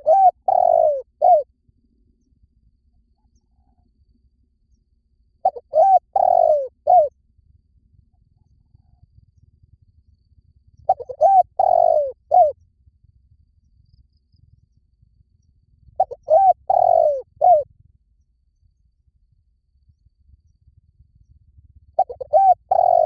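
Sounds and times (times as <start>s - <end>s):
dove cooing: 0.0s - 1.5s, 5.4s - 7.1s, 10.9s - 12.6s, 16.0s - 17.7s, 22.0s - 23.0s.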